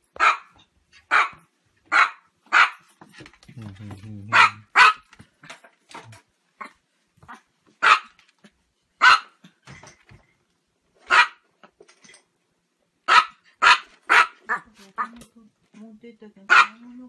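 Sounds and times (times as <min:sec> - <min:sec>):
small dog barking: 0:00.2 - 0:02.8, 0:04.3 - 0:05.1, 0:07.3 - 0:08.2, 0:09.0 - 0:09.4, 0:11.1 - 0:11.4, 0:13.1 - 0:15.2, 0:16.5 - 0:16.9.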